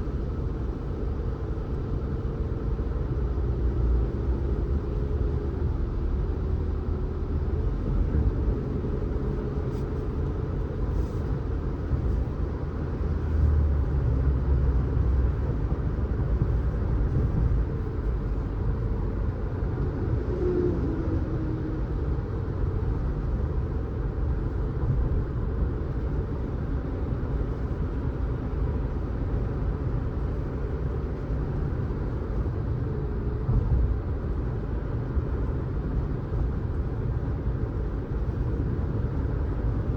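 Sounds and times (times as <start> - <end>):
car engine and tyres rumbling: 0.0 - 39.9
faint wavering engine tone: 20.0 - 22.3.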